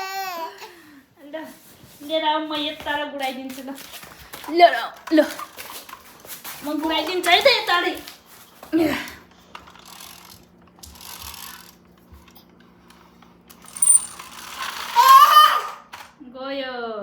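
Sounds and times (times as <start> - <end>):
toy friction motor whirring: 9.6 - 11.8, 13.6 - 15.8.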